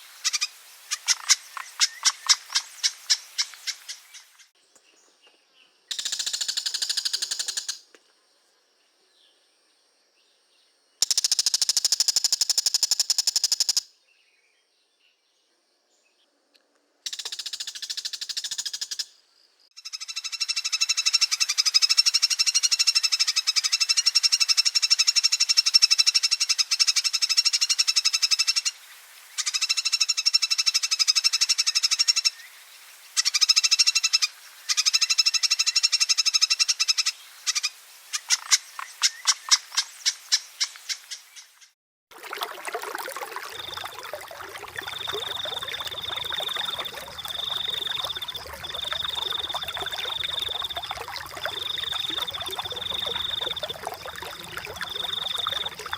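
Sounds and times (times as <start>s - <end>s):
flowing water: 42.1s - 55.9s.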